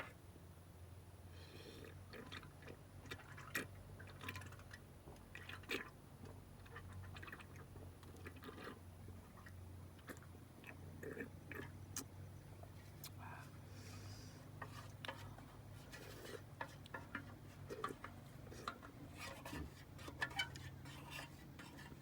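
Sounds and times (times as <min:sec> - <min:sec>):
chewing with soft clicks: 0:01.8 - 0:13.6
steady low hum: 0:08.9 - 0:22.0.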